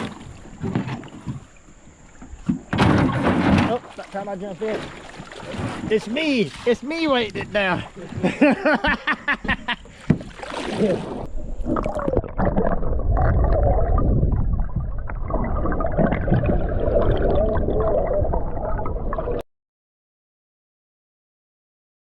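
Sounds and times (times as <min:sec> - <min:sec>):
muffled gurgling creek water: 0:00.0 - 0:19.4
water splash: 0:02.7 - 0:08.2, 0:10.0 - 0:19.4.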